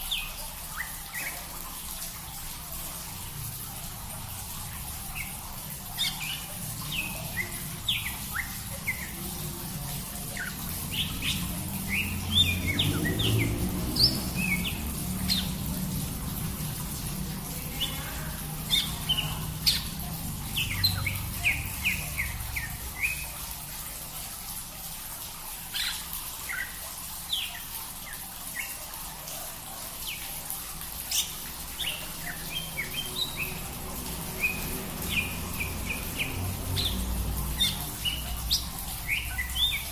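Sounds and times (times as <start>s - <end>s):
small birds chirping: 0.0s - 2.6s, 3.2s - 24.0s, 25.6s - 39.9s
low rumble and hiss: 0.0s - 39.9s.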